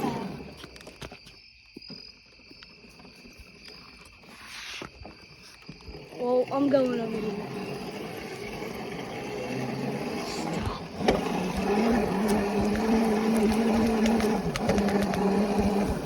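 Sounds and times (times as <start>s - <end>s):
dirt bike motor humming: 5.4s - 16.0s
bumps and rattles: 10.1s - 16.0s.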